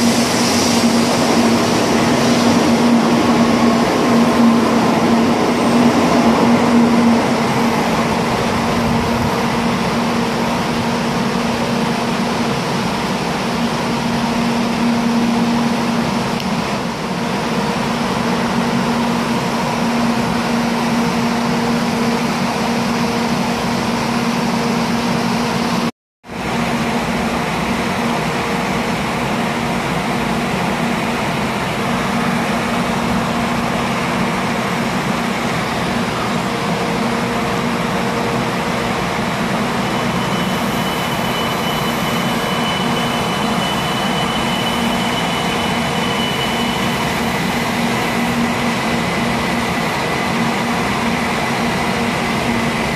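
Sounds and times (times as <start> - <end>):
train rumbling past: 0.0 - 52.9.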